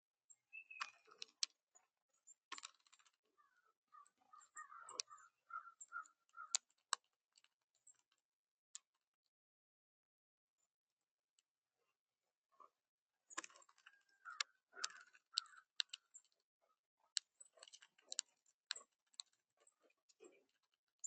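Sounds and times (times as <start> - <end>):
bird pecking at seed feeder: 13.4 - 16.1.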